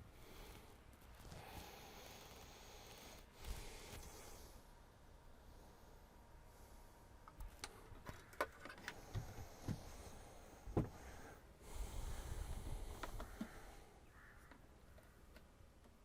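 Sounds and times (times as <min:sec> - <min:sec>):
clicks and knocks of handling: 0:07.3 - 0:09.8.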